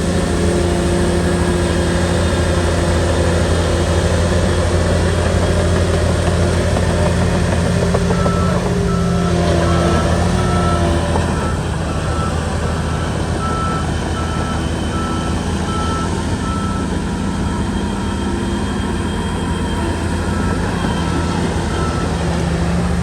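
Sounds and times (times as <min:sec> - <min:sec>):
bulldozer diesel engine running: 0:00.0 - 0:23.0
reversing alarm beeps: 0:07.7 - 0:23.0.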